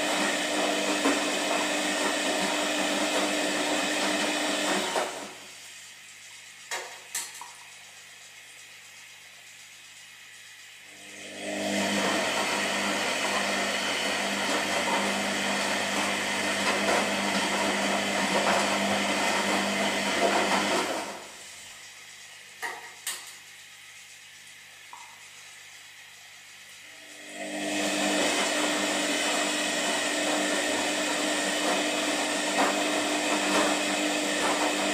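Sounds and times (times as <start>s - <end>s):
washing machine drum churning: 0.0s - 5.5s, 11.3s - 21.4s, 27.1s - 34.9s.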